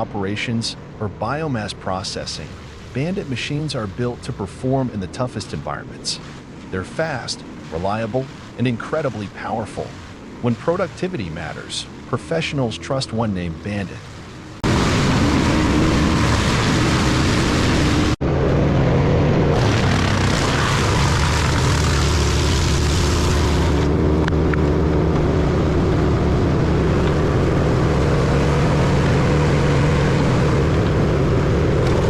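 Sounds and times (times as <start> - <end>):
dense rushing noise: 0.0 - 32.0
wood chipper engine drone: 14.4 - 32.0.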